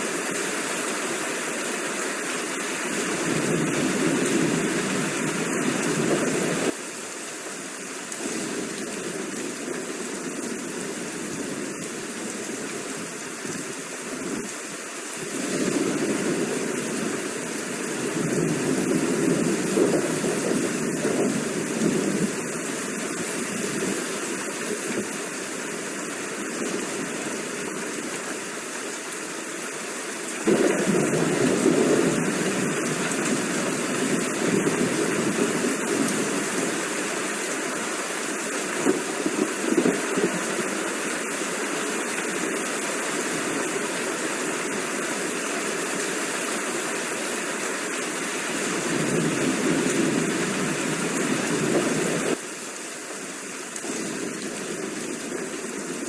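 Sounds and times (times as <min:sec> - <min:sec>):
steady rain falling: 0:00.0 - 0:56.0
distant thunder rumbling: 0:15.2 - 0:22.5, 0:30.4 - 0:36.9, 0:48.6 - 0:52.4.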